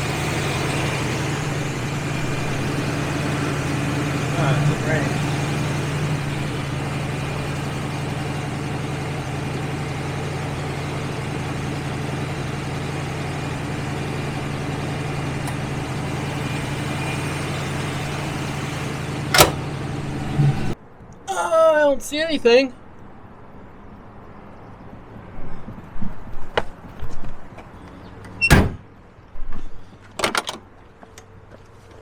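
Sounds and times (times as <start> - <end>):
car engine idling: 0.0 - 20.8.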